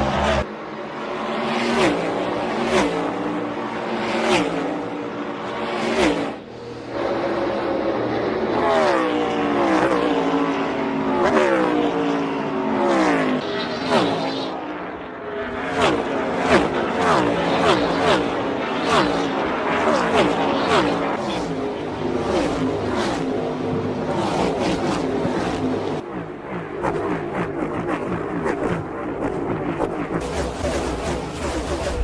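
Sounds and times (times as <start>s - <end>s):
race car engines passing by: 0.0s - 32.0s.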